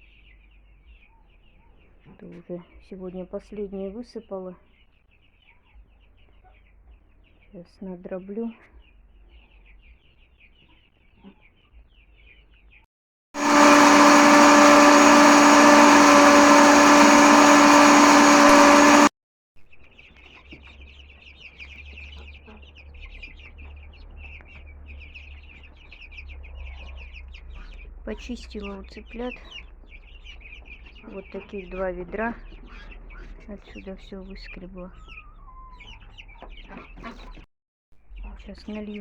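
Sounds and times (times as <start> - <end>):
electric grain crusher grinding: 13.4 - 19.1
chicks peeping: 28.7 - 37.4.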